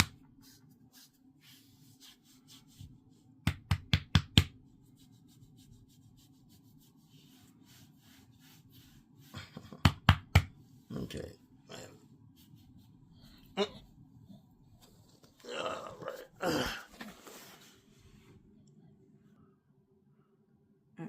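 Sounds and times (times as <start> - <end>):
hands rubbing: 0.0 - 3.8, 4.4 - 10.7, 12.1 - 15.3.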